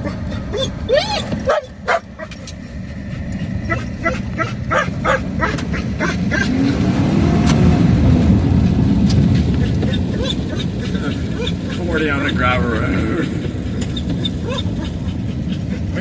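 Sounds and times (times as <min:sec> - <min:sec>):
dog yipping: 0:00.0 - 0:02.5, 0:03.4 - 0:06.7, 0:09.6 - 0:12.3, 0:13.7 - 0:16.0
car engine and road noise: 0:00.0 - 0:16.0.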